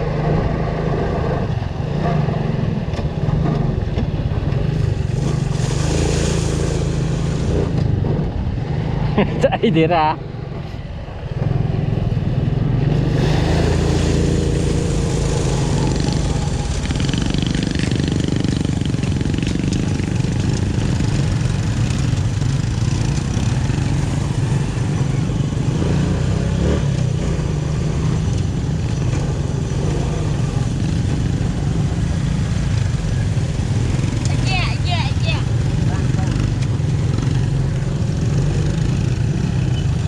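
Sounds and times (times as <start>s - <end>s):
motorcycle engine running: 0.0s - 9.0s, 10.4s - 40.0s
rushing noise: 4.2s - 9.1s, 10.5s - 27.4s.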